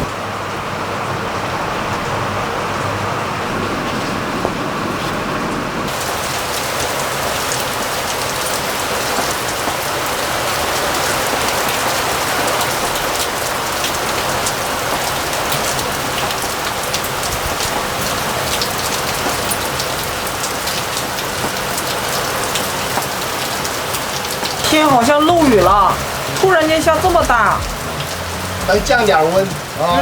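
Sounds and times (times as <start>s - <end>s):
heavy rain pouring: 0.0s - 30.0s
raindrops ticking on a surface: 5.9s - 29.8s.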